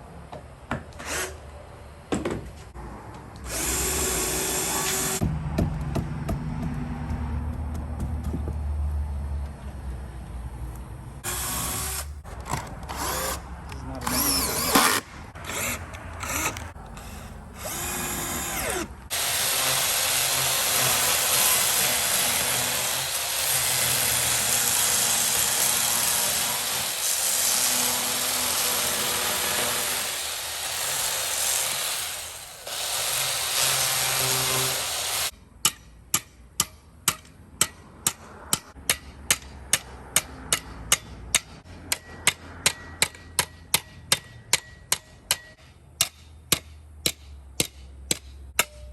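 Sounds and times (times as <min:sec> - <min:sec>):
power tool running: 0:03.4 - 0:05.2, 0:14.0 - 0:35.3.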